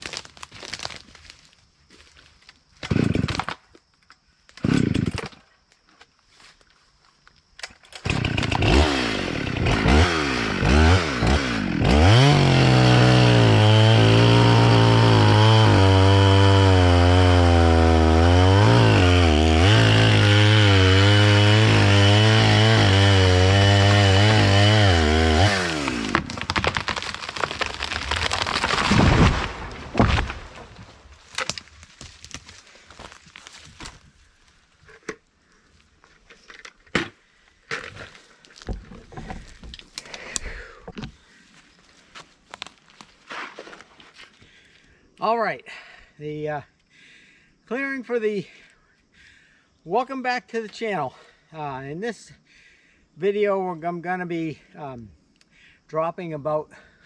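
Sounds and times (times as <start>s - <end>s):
chainsaw revving and cutting: 2.8s - 3.4s, 4.6s - 5.2s, 8.0s - 29.4s.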